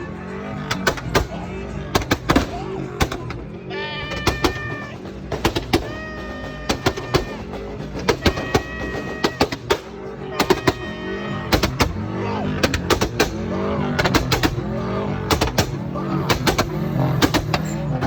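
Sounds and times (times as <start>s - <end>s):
car exhaust popping and crackling: 0.0s - 18.0s.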